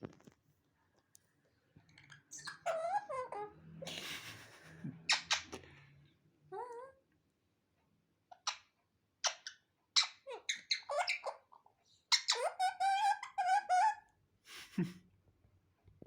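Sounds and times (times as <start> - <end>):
parrot squawking and screeching: 1.9 - 3.9, 5.0 - 5.6, 8.3 - 14.1.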